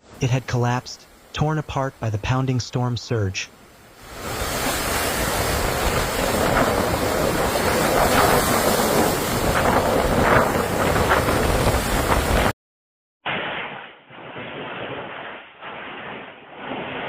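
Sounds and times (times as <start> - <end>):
storm wind buffeting microphone: 4.1 - 12.5.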